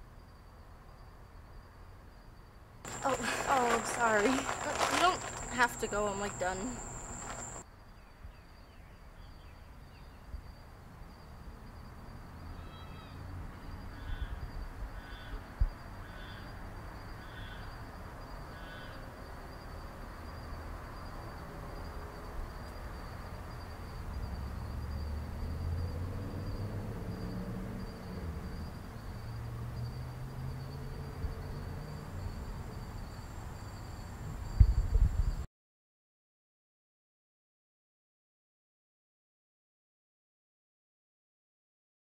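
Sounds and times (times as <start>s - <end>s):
insects droning: 0.0s - 35.5s
bird calling: 2.9s - 7.6s.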